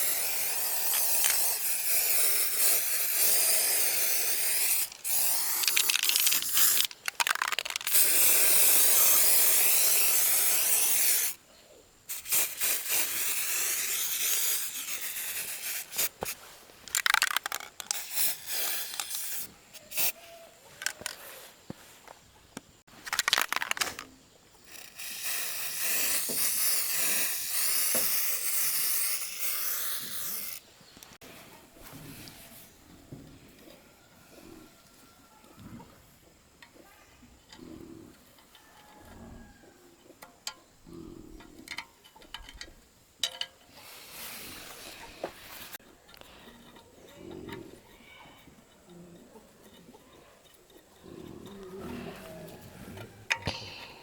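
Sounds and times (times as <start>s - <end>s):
loud hissing spray: 0.0s - 7.0s, 7.6s - 11.4s, 12.1s - 16.4s, 17.9s - 20.2s, 24.7s - 30.6s, 43.8s - 45.8s.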